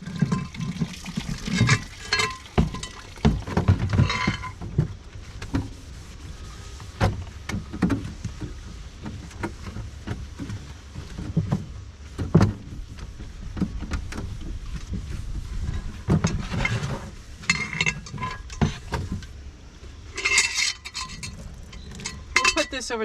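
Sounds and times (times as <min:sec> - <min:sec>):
cookware knocking and clattering: 0:01.5 - 0:04.6, 0:22.1 - 0:22.7.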